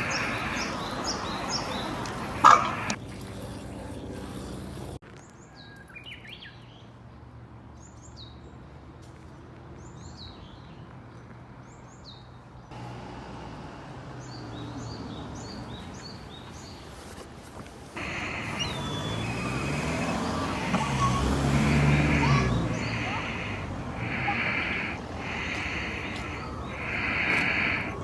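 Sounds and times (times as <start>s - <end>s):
songbird calling: 0.0s - 4.6s, 12.7s - 17.2s, 17.9s - 28.0s.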